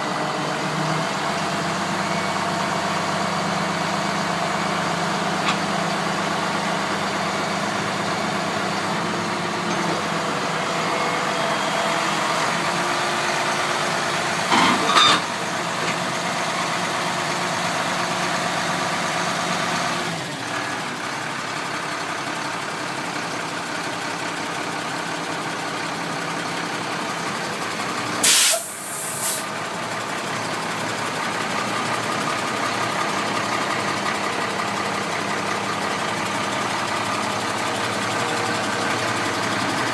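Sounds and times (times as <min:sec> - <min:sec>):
diesel truck engine idling: 0:00.0 - 0:14.5, 0:15.3 - 0:39.9
air hiss burst: 0:28.2 - 0:29.5.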